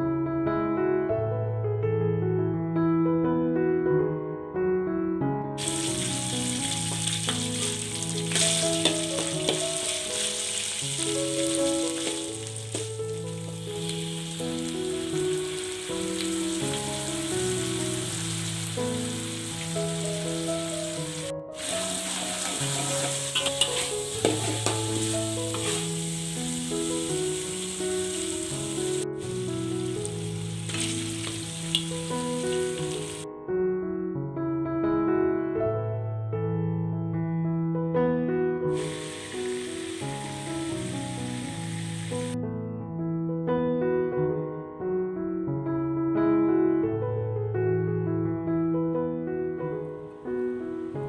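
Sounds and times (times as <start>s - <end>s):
soft piano music: 0.0s - 51.0s
paste sizzling in oil: 5.6s - 33.2s, 38.8s - 42.4s
spatula knocking and scraping: 22.1s - 26.0s.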